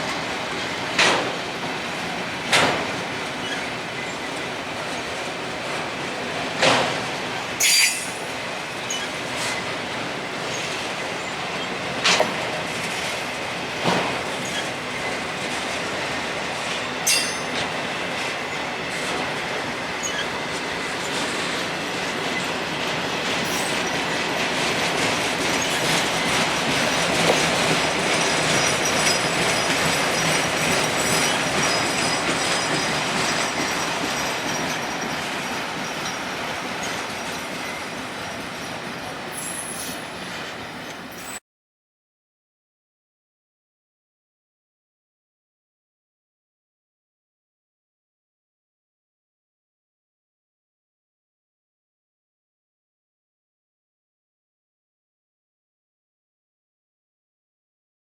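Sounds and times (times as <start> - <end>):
railroad cars rolling past: 0.0 - 41.4
wheel squeaks and clanks: 2.5 - 5.1, 7.6 - 9.7, 13.8 - 15.2, 17.0 - 18.3, 19.9 - 21.4, 23.2 - 41.4.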